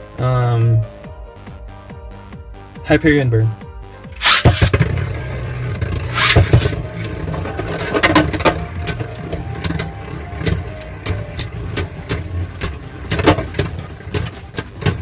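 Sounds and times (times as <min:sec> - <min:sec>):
spinning tops clacking: 0:04.2 - 0:15.0
spinning tops whirring: 0:04.2 - 0:15.0.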